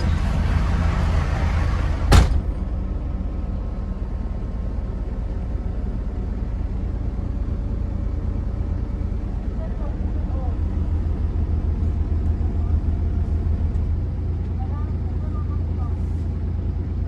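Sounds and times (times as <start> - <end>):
diesel engine idling: 0.0 - 17.0
cab door slamming: 2.0 - 2.8.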